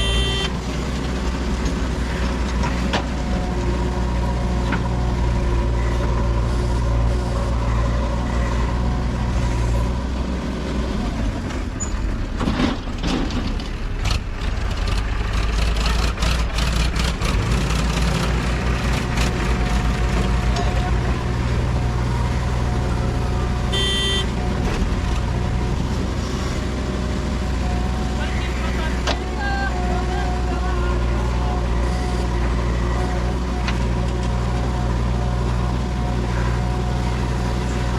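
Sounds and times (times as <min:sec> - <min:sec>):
short high-pitched tone: 0:00.0 - 0:00.5, 0:23.7 - 0:24.3
diesel engine running: 0:00.0 - 0:37.9
clatter and knocks: 0:12.3 - 0:15.0.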